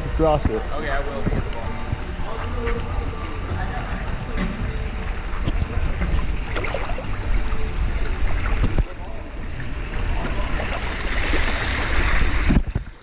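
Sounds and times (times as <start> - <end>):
wind buffeting microphone: 11.7 - 13.0.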